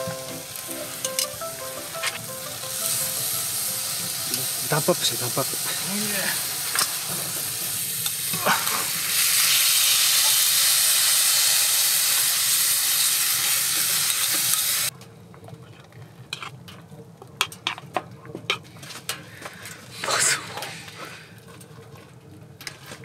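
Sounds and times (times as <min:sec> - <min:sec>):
vegetables sizzling in pot: 0:00.0 - 0:14.9.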